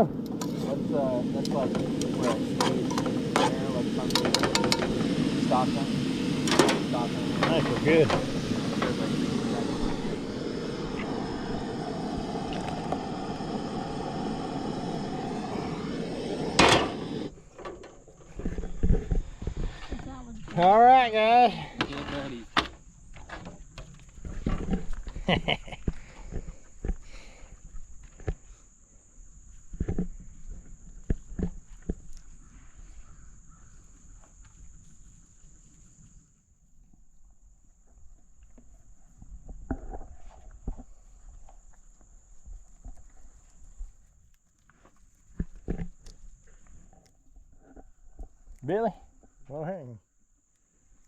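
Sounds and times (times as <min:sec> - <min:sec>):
high-pitched hum: 0:00.0 - 0:17.4
propane burner roaring: 0:00.0 - 0:27.5
loud metal clank: 0:16.5 - 0:17.1.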